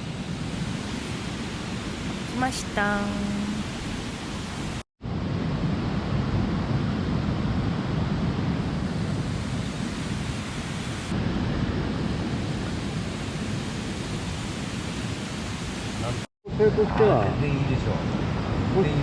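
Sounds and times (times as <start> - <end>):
mountain stream rushing: 11.8 - 16.3.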